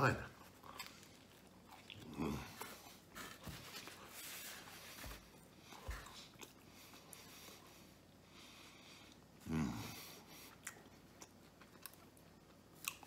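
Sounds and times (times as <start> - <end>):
man chewing: 0.4 - 4.0, 5.4 - 8.0, 8.8 - 13.0.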